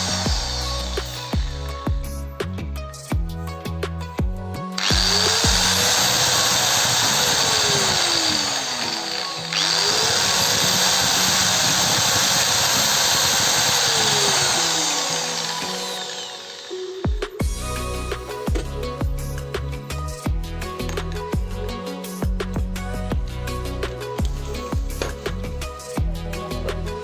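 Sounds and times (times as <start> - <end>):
angle grinder spinning: 0.0 - 1.8, 4.8 - 18.4
background music: 0.0 - 27.0.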